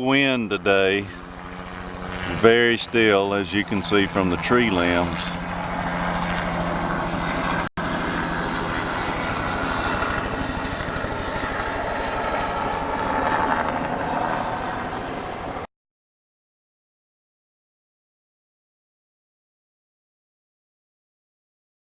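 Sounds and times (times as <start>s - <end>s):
helicopter rotor chopping: 0.0s - 15.7s.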